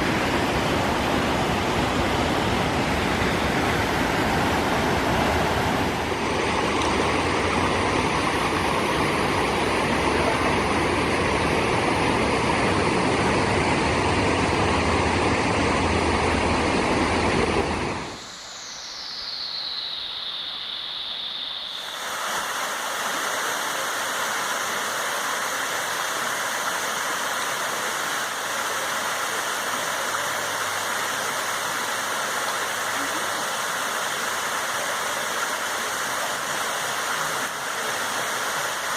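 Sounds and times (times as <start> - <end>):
waterfall roaring: 0.0 - 18.4, 21.7 - 38.9
high tone gliding down: 17.9 - 22.5.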